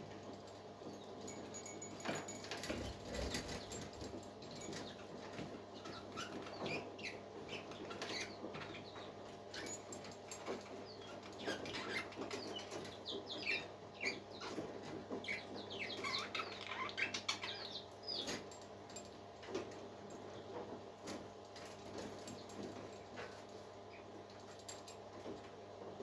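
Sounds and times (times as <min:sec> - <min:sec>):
faint steady hum: 0:00.0 - 0:06.2, 0:15.2 - 0:26.0
parakeets chirping: 0:15.2 - 0:18.2.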